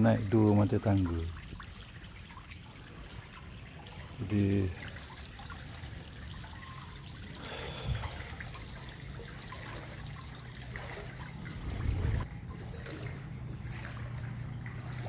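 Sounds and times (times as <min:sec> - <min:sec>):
floodwater trickling: 0:00.0 - 0:15.0
water splash: 0:01.3 - 0:15.0
low hum: 0:08.0 - 0:15.0.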